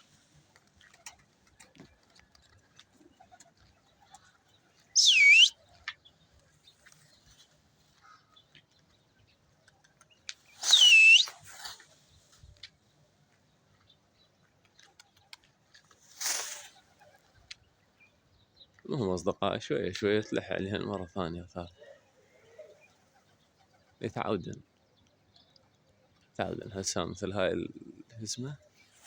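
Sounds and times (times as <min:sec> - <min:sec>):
person whistling loudly: 0:05.0 - 0:05.5, 0:10.7 - 0:11.3.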